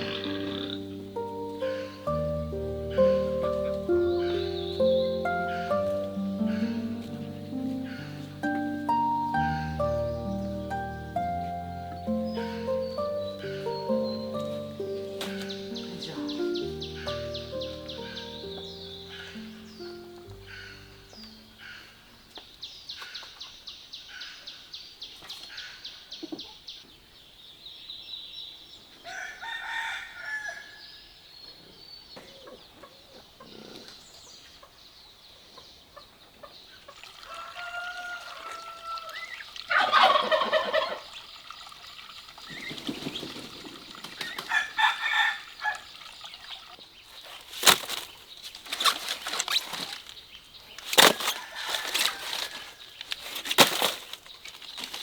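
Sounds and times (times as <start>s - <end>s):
poultry calling: 0.0s - 22.2s, 37.2s - 41.2s.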